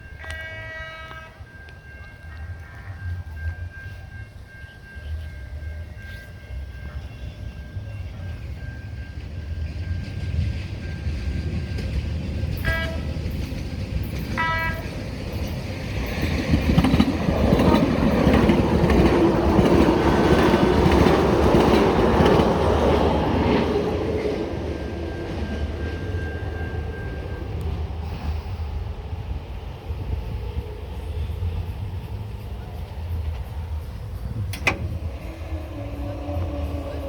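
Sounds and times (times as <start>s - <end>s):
trolley horn blasts: 0.0s - 3.6s, 12.5s - 13.4s, 14.3s - 15.0s, 34.5s - 37.0s
wheels rumbling on rail: 0.0s - 37.0s.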